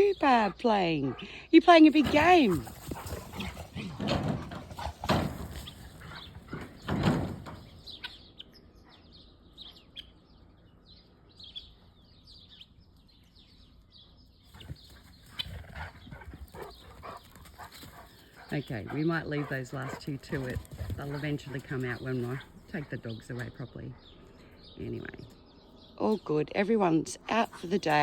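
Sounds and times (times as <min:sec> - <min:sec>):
small birds chirping: 0:00.0 - 0:28.0
scuffling thumps: 0:01.9 - 0:07.9.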